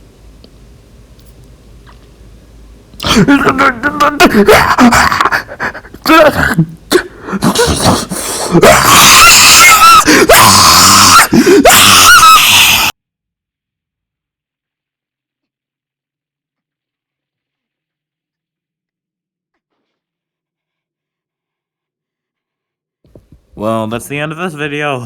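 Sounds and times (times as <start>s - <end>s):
person screaming: 3.0s - 12.9s.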